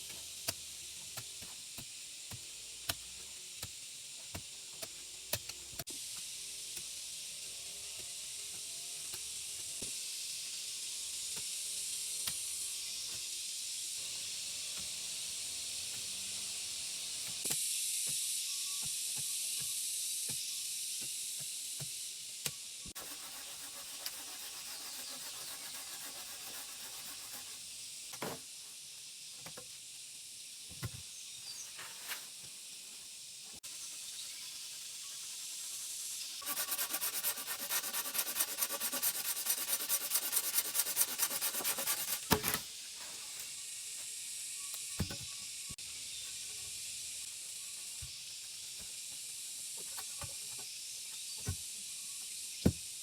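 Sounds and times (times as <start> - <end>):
high outdoor hiss: 0.0 - 53.0
rapid scraping strokes: 22.9 - 27.7, 33.6 - 43.3.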